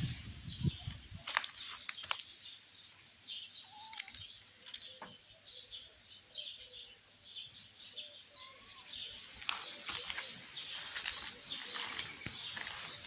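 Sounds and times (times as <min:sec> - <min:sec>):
small bird chirping: 0:00.0 - 0:13.0
sharp clicks or rustles: 0:03.6 - 0:05.1.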